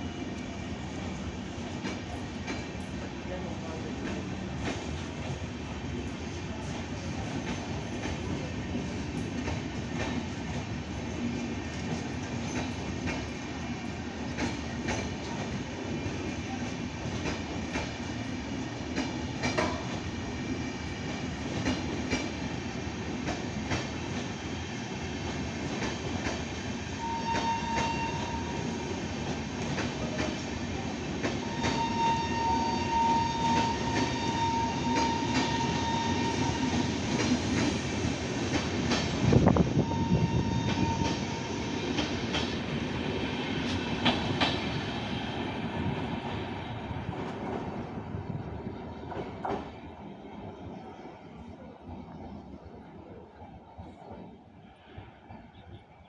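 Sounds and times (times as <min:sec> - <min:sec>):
train rumble: 0:00.0 - 0:55.9
train wheels clicking over rail joints: 0:01.7 - 0:03.0, 0:06.0 - 0:11.1, 0:11.7 - 0:13.5, 0:14.3 - 0:15.6, 0:18.8 - 0:20.2, 0:21.0 - 0:22.5, 0:29.2 - 0:30.5, 0:33.4 - 0:39.5, 0:40.6 - 0:46.5, 0:49.0 - 0:49.8.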